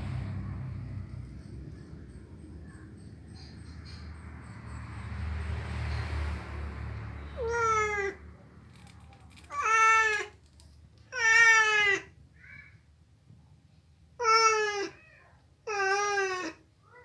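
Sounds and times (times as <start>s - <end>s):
cat meowing: 7.3s - 8.3s, 9.5s - 10.3s, 11.1s - 12.7s, 14.2s - 17.0s.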